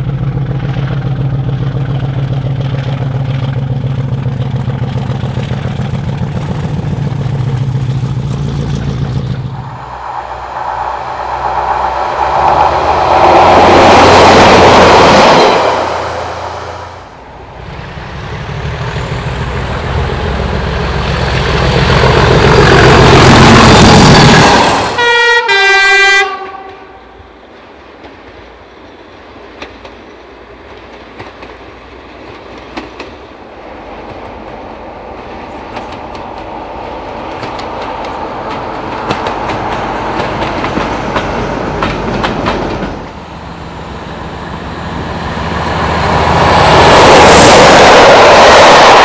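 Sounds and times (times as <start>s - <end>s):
train rushing past: 5.2s - 49.0s
train horn: 24.9s - 27.3s.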